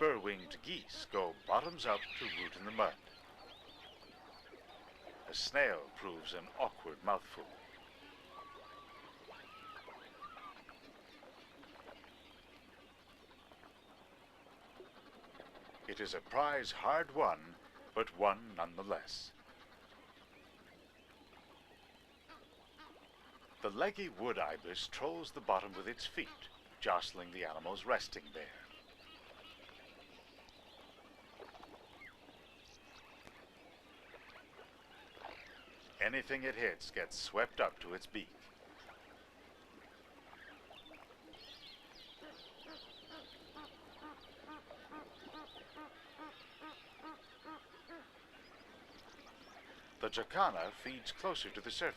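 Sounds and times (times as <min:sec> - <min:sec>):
bird chirps and calls: 0:00.0 - 0:11.0, 0:40.4 - 0:51.1
birds chirping: 0:00.0 - 0:51.9
waterbird calls: 0:00.0 - 0:51.9
low hiss: 0:05.3 - 0:09.0, 0:34.9 - 0:40.6.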